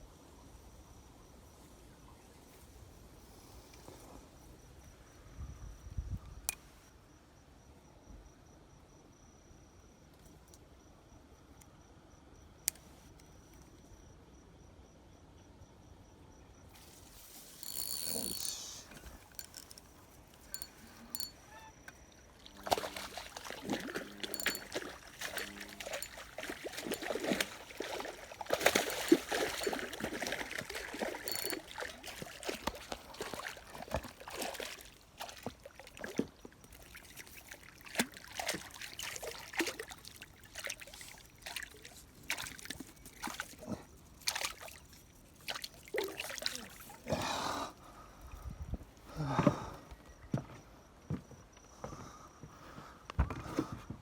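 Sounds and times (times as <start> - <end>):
faint insect trill: 0.0 - 54.0
water splashing and trickling: 22.1 - 47.1.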